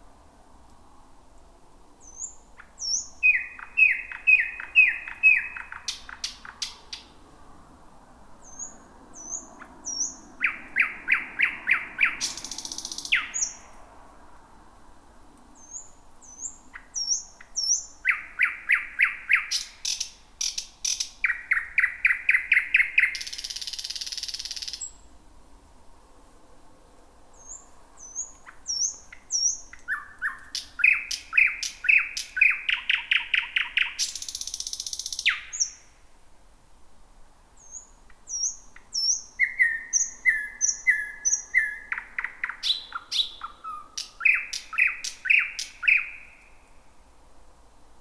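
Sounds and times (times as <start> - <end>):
nightingale singing: 2.0 - 7.2, 8.4 - 13.8, 15.6 - 25.1, 27.4 - 36.0, 37.6 - 46.8.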